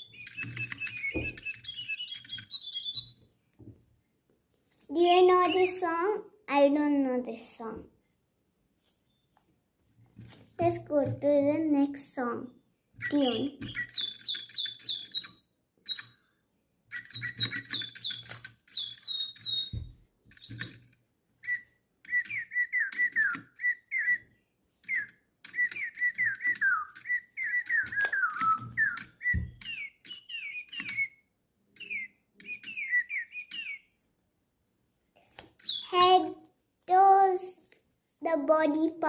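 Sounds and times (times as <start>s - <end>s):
electronic bird chirps: 0.0s - 3.2s, 13.0s - 20.8s, 21.4s - 34.0s, 35.6s - 36.3s
whistled tune of gliding notes: 21.4s - 24.3s, 24.9s - 31.2s.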